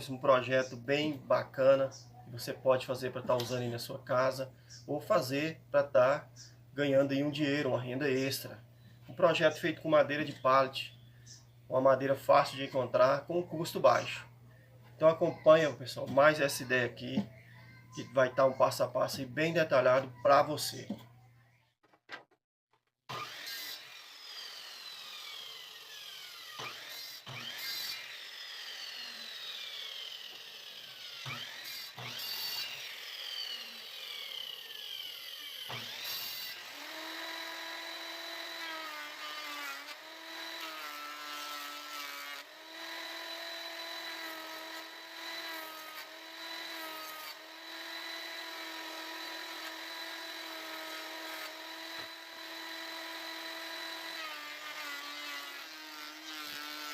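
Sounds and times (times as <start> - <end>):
power tool cutting wood: 23.1 - 56.9.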